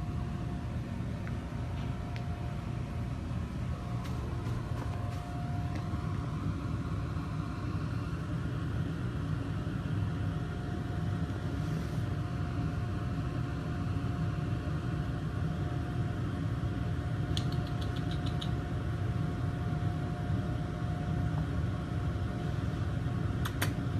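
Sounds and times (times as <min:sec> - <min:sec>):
faint constant tone: 0:00.0 - 0:23.4
low mechanical hum: 0:00.0 - 0:23.9
light ticks: 0:17.3 - 0:18.6.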